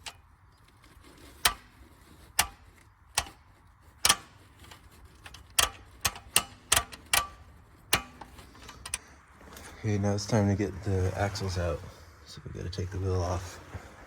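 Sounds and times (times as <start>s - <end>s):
hand tools clicking on metal: 0.0s - 9.7s.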